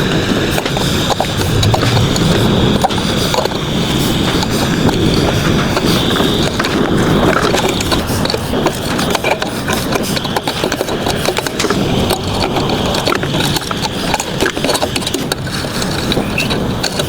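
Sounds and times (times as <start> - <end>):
forge roar: 1.2 - 4.2.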